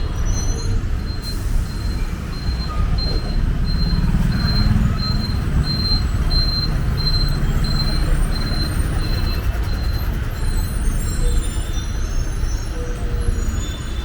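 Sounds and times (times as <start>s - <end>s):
high electronic beep: 0.0s - 12.0s
heavy vehicles rumbling: 0.0s - 14.0s.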